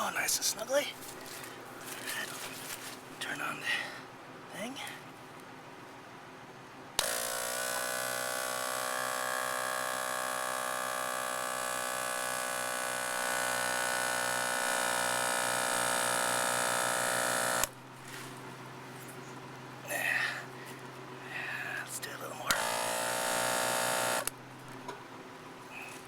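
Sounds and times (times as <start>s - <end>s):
air compressor motor buzz: 7.0s - 17.8s, 22.5s - 24.4s.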